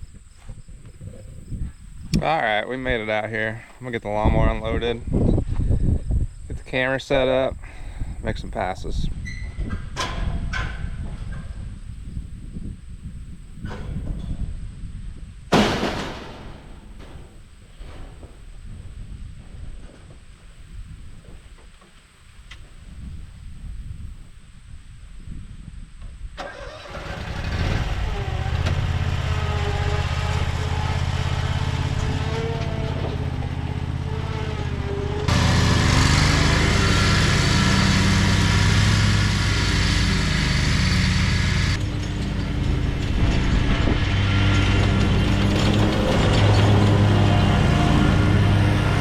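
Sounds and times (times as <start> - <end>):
mower engine running: 26.4 - 49.0.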